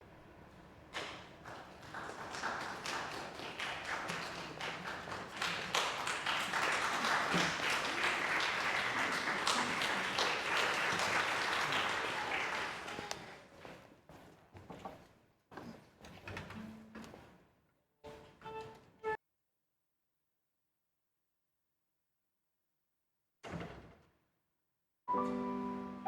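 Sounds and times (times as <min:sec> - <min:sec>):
audience applauding: 0:01.0 - 0:13.5.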